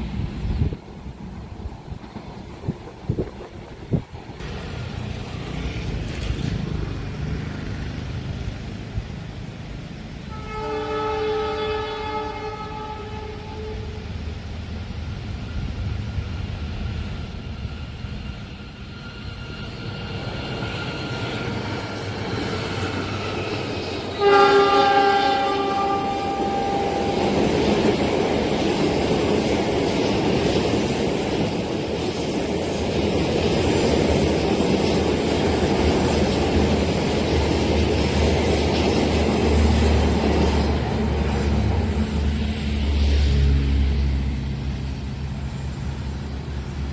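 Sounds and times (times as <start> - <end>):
train rumbling: 0.0 - 46.9
train wheels on rails: 0.0 - 46.9
train horn blast: 10.3 - 14.1, 24.1 - 27.6.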